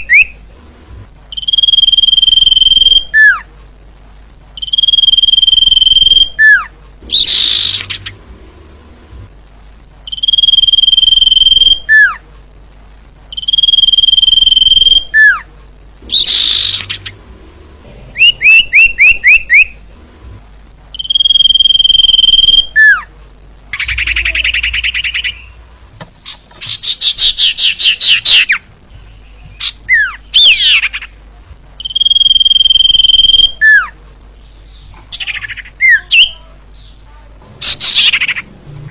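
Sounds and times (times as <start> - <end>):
bird whistling: 1.3 - 3.4, 4.6 - 8.1, 10.1 - 12.2, 13.3 - 15.4, 16.1 - 17.1, 18.2 - 19.7, 20.9 - 23.1, 23.8 - 25.6, 29.6 - 31.0, 31.8 - 33.9, 37.6 - 38.5
bird trills and chattering: 4.6 - 8.2, 16.1 - 17.2, 18.1 - 19.7, 21.0 - 23.0, 23.7 - 25.6, 31.8 - 33.9, 37.6 - 38.5.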